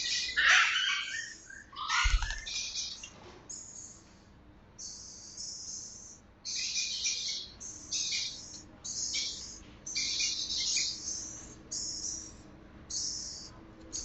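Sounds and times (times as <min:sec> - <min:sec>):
parrots chirping shrilly: 0:00.0 - 0:03.0.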